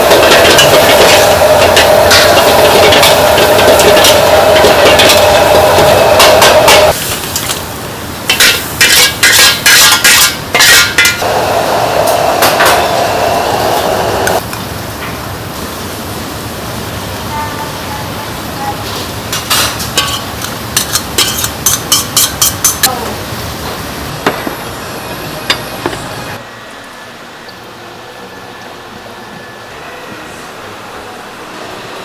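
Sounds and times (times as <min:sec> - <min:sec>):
utensils and cookware clinking: 0:00.0 - 0:07.7, 0:08.3 - 0:11.3, 0:18.8 - 0:23.1.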